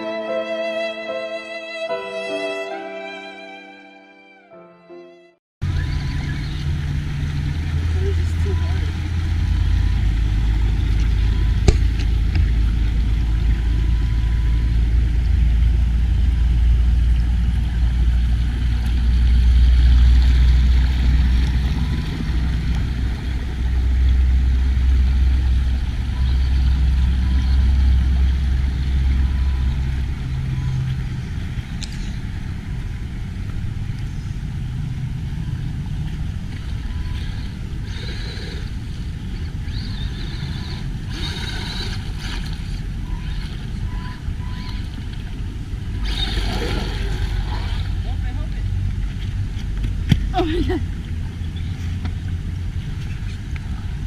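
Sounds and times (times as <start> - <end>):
rc car rumbling with hiss: 37.2 - 39.0.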